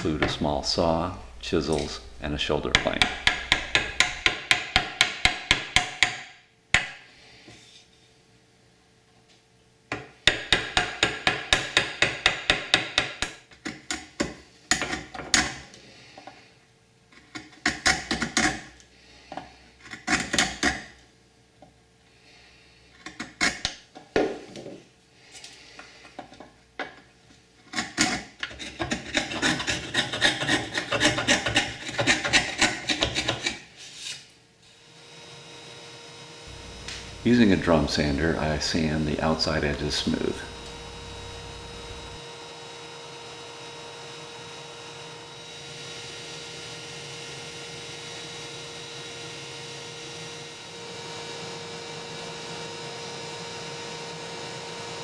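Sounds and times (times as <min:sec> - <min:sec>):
hand saw rasping through wood: 0:00.1 - 0:04.2, 0:28.8 - 0:33.6.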